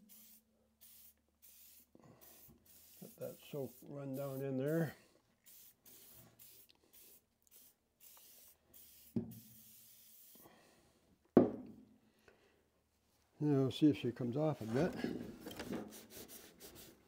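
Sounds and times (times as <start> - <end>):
spray can hissing: 0.0 - 10.4, 15.8 - 17.0.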